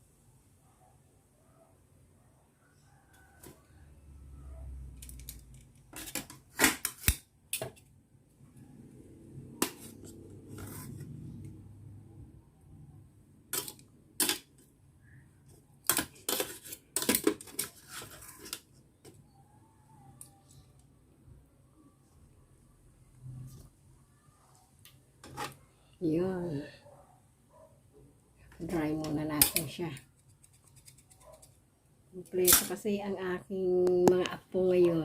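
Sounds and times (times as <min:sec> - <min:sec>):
kitchenware clinking and clattering: 0:13.5 - 0:14.6, 0:15.8 - 0:18.6.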